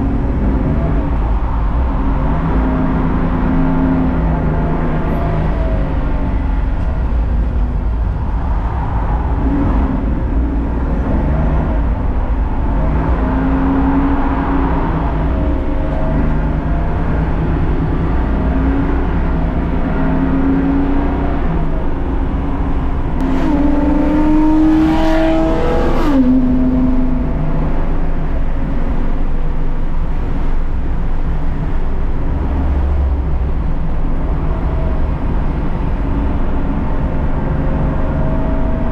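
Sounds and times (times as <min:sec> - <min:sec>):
race car engine revving: 0:09.0 - 0:38.9.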